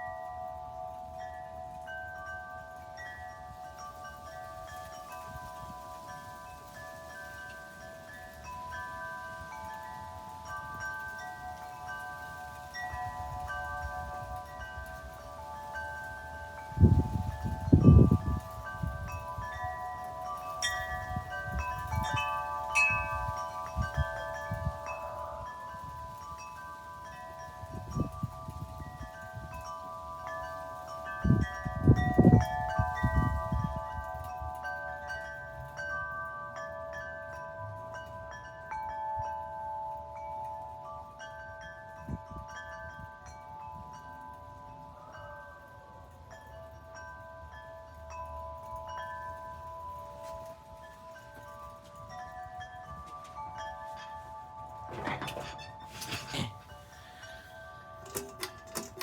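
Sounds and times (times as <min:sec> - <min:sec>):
metal wind chimes ringing: 0:00.0 - 0:59.0
wind buffeting microphone: 0:08.1 - 0:30.4, 0:31.0 - 0:35.8.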